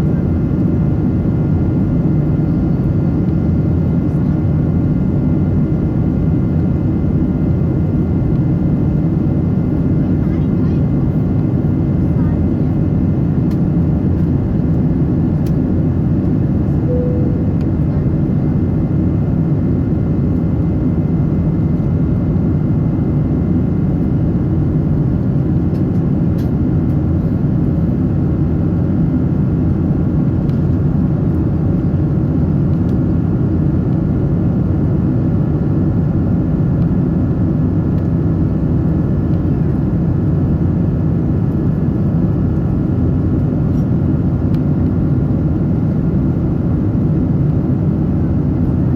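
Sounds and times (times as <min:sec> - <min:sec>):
airplane cabin rumble: 0:08.9 - 0:19.1
short faint tone: 0:16.9 - 0:18.2.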